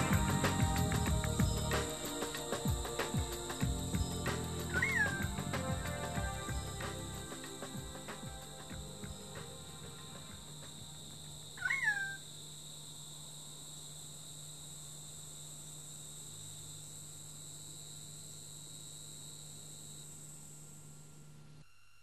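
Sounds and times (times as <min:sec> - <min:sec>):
insects droning: 0:00.0 - 0:22.0
swooping bird call: 0:04.7 - 0:05.4, 0:11.6 - 0:12.2.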